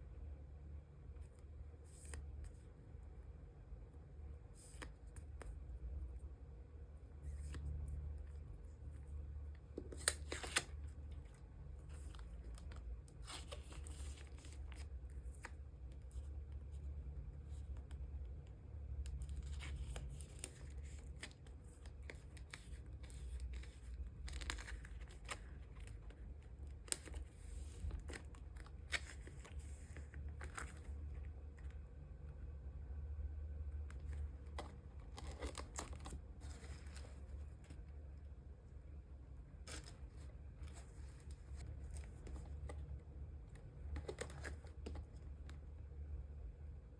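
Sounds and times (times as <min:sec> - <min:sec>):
low steady hum: 0:00.0 - 0:46.9
plastic sleeves crinkling: 0:09.6 - 0:16.3, 0:19.1 - 0:31.8, 0:33.9 - 0:37.9, 0:39.6 - 0:45.6.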